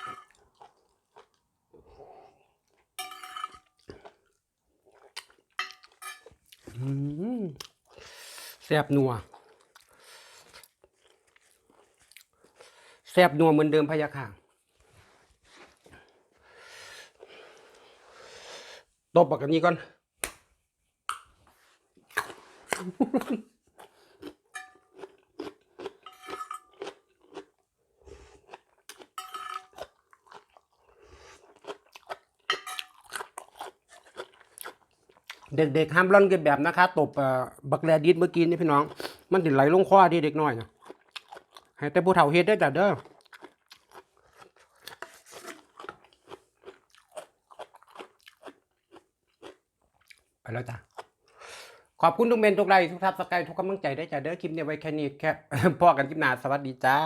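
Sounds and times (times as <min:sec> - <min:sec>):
person chewing with wet crunches: 0:00.0 - 0:03.0, 0:03.7 - 0:06.9, 0:09.2 - 0:12.7, 0:21.1 - 0:35.6, 0:40.6 - 0:41.9, 0:42.8 - 0:51.4.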